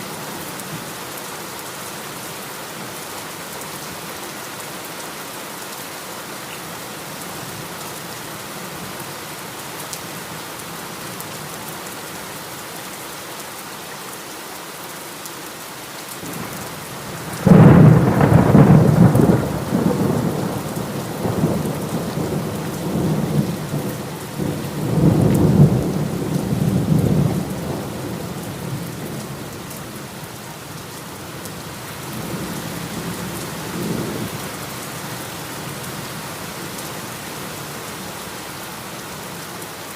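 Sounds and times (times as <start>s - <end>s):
heavy rain: 0.0s - 39.9s
thunderclap rumbling: 17.3s - 27.8s.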